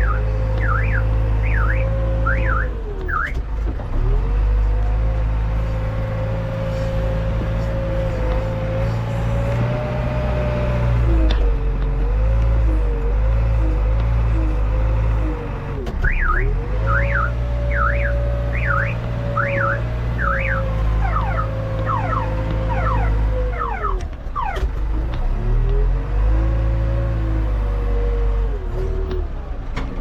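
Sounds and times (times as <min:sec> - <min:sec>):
diesel engine running: 0:00.0 - 0:30.0
warbling alarm tone: 0:16.9 - 0:24.6.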